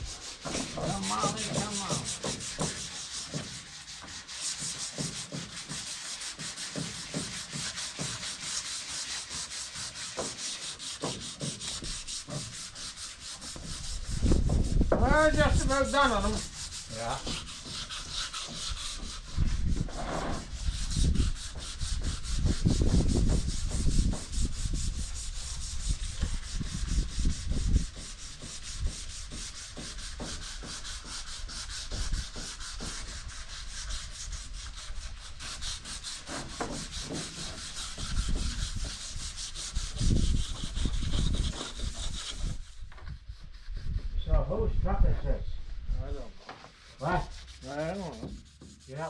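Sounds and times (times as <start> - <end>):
sandpaper rubbing on a surface: 0.0 - 44.6, 46.1 - 49.0
low rumbles and knocks: 13.6 - 15.6, 18.6 - 25.0.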